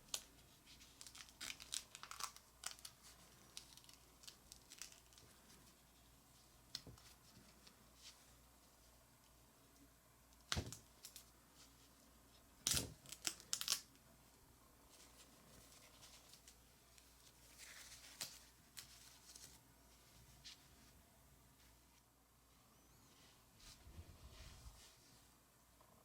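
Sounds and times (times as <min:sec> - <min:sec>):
packaging ripping and crinkling: 0:00.9 - 0:05.3, 0:12.6 - 0:13.9.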